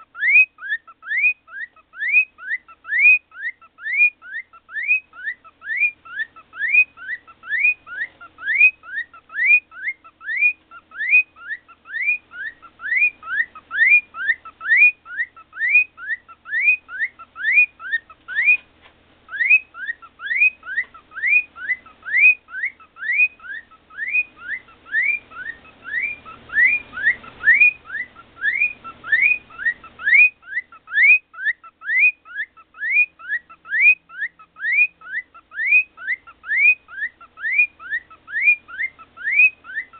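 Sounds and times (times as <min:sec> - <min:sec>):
cockatiel whistling rising notes: 0:19.3 - 0:39.9.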